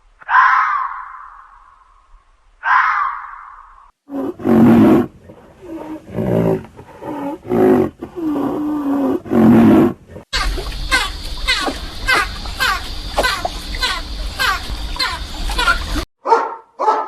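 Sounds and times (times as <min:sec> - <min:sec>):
big cat roaring: 0:04.1 - 0:10.2.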